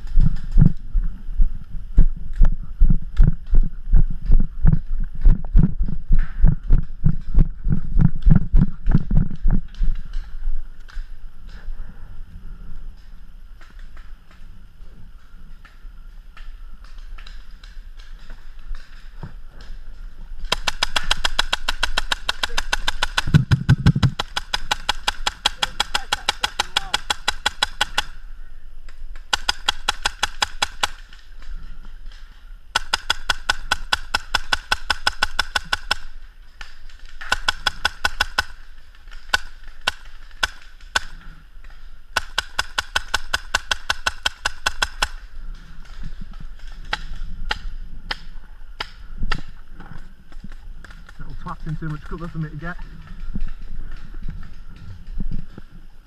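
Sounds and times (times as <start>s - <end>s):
paintball marker firing: 20.4s - 28.2s, 29.1s - 31.2s, 32.8s - 41.2s, 42.2s - 45.3s.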